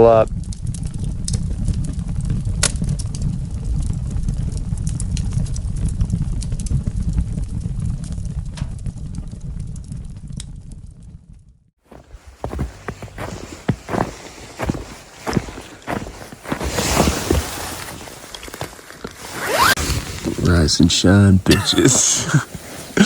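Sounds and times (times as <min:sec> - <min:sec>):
crackles and ticks: 0:00.2 - 0:11.4.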